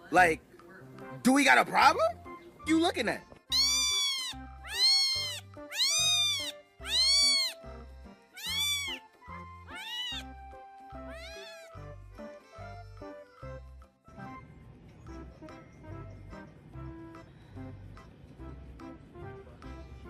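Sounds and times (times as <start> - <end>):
background music with steady beat: 0.0 - 20.0
cat meowing: 3.5 - 7.6, 8.4 - 9.0, 9.7 - 10.3, 11.0 - 11.8.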